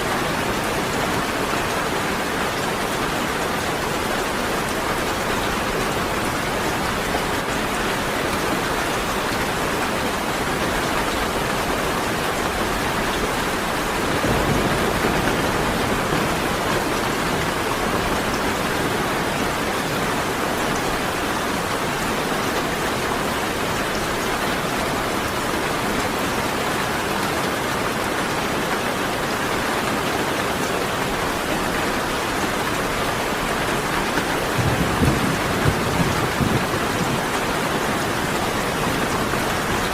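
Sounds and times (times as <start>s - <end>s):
heavy rain falling: 0.0s - 39.9s
thunder rumble: 14.0s - 18.3s, 34.4s - 37.5s.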